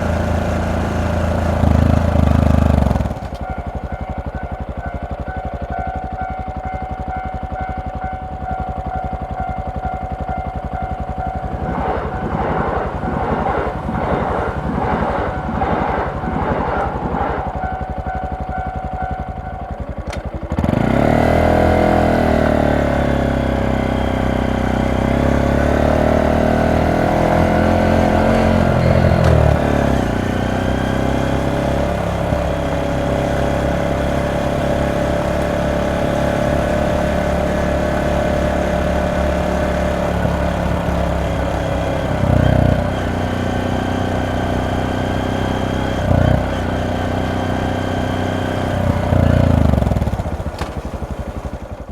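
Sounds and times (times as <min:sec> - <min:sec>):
motorcycle engine and exhaust: 0:00.0 - 0:51.9.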